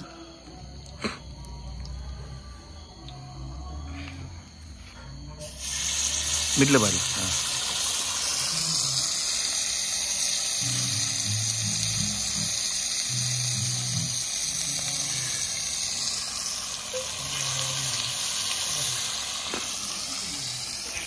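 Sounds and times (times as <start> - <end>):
prawns sizzling in hot oil: 5.4 - 21.0.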